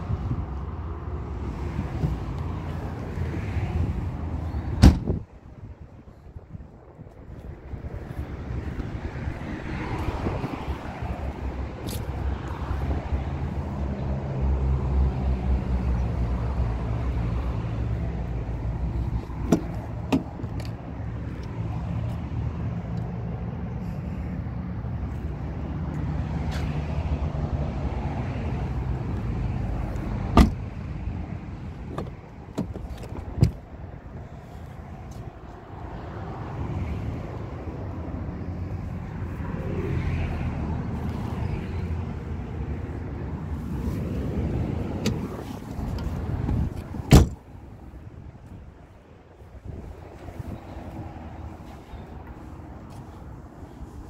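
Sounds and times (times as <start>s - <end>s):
car doors clicking and knocking: 4.8s - 5.2s, 19.4s - 20.8s, 30.3s - 30.6s, 31.9s - 33.6s, 45.9s - 47.4s.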